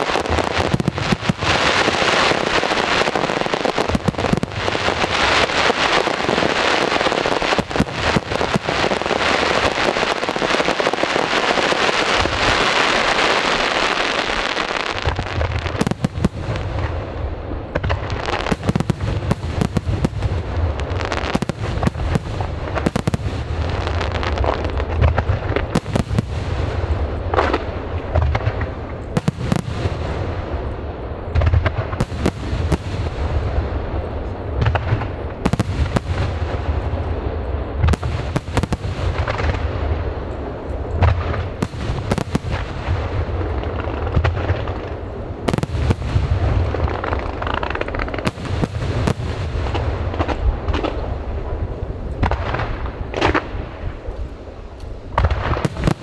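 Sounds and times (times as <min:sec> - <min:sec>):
fireworks crackling: 0:00.0 - 0:56.0
firework shells bursting: 0:31.6 - 0:51.4.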